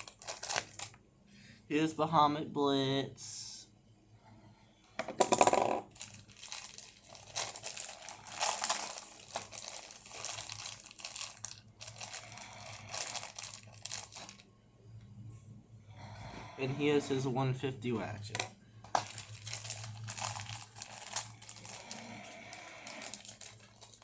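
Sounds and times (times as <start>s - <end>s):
plastic packaging crinkling: 0.0s - 1.0s, 5.3s - 14.4s, 18.2s - 24.0s.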